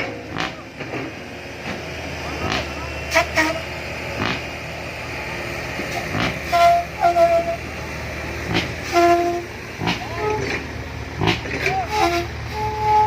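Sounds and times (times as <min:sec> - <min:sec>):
heavy vehicle engine running: 0:00.0 - 0:13.0
short high horn toots: 0:03.1 - 0:03.7, 0:06.4 - 0:07.6, 0:08.8 - 0:09.5, 0:11.9 - 0:13.0.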